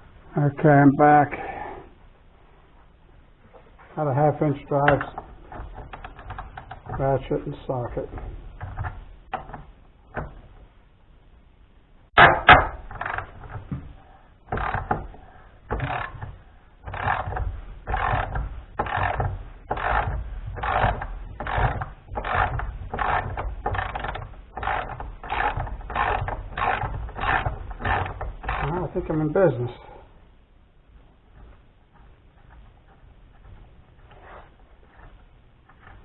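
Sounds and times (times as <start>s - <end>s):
ratchet pawl clicking: 15.7s - 28.8s.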